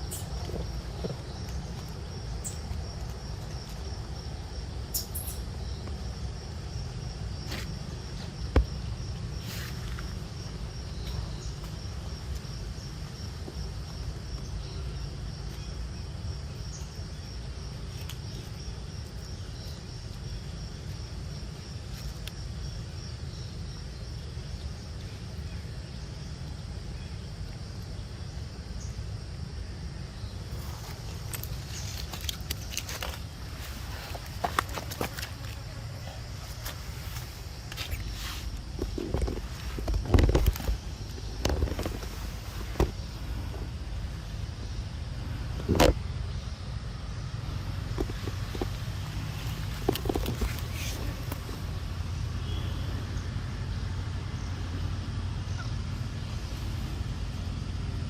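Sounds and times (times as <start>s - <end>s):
constant low rumble: 0.0s - 58.0s
insects calling: 0.0s - 58.0s.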